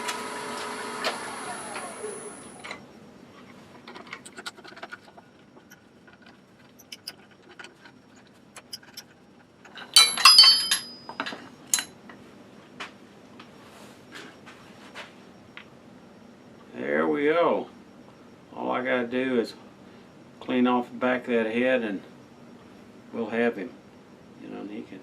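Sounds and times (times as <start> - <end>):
metal tools clinking: 3.9 - 12.0.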